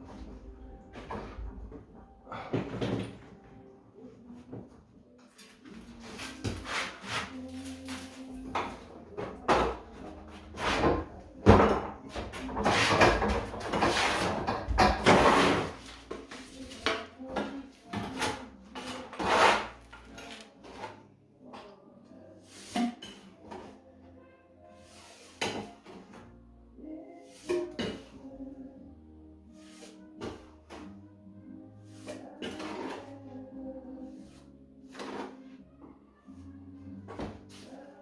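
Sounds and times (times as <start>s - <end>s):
hand tools scraping stone: 5.8s - 21.1s, 32.0s - 33.4s, 34.1s - 35.6s.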